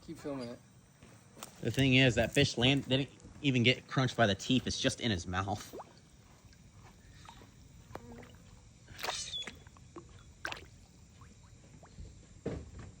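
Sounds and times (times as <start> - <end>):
water splashes: 5.6 - 6.6, 7.2 - 12.0
water sloshing and lapping: 5.6 - 12.1.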